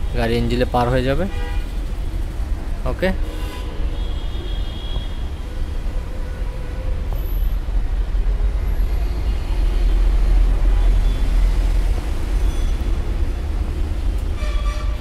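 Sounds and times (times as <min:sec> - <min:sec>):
car engine rumbling: 0:00.0 - 0:04.5.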